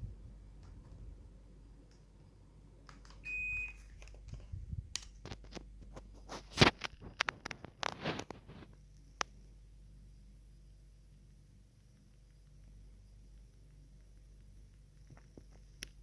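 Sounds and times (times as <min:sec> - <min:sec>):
air conditioner high beep: 0:03.2 - 0:04.0.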